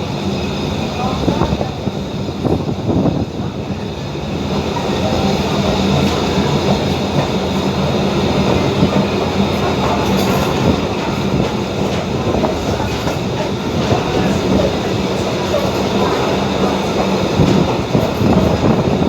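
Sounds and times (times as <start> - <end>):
train rumbling on track: 0.0 - 19.0
train wheels clicking on rail joints: 4.5 - 19.0.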